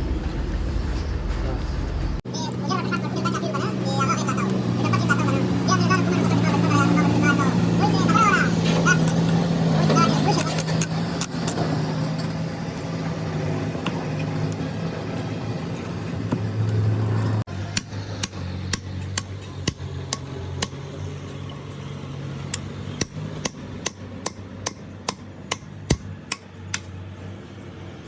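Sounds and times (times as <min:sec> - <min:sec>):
low machine hum: 0:00.0 - 0:11.7
sharp hammer taps: 0:17.7 - 0:20.8, 0:22.5 - 0:26.9.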